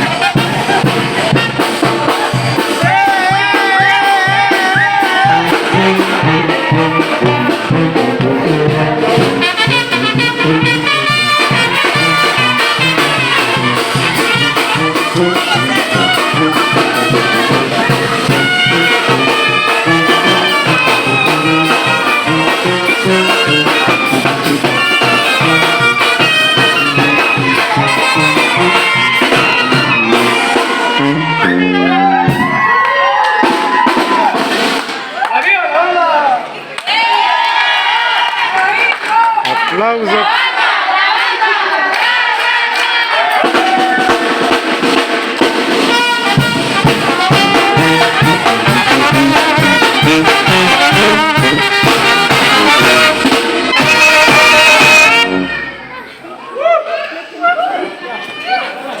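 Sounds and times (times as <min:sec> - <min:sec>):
bass drum beat: 0:00.0 - 0:34.7, 0:43.4 - 0:55.5
brass band playing: 0:00.0 - 0:35.3, 0:36.9 - 0:56.5.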